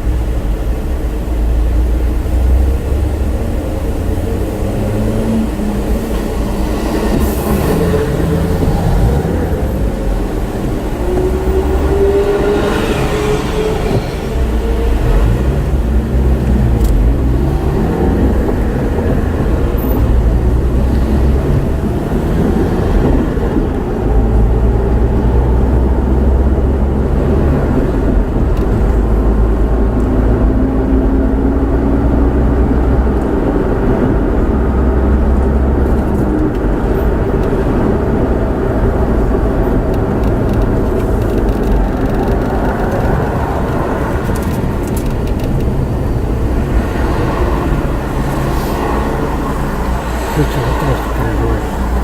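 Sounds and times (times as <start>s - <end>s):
vehicle engine and road rumble: 0.0s - 52.0s.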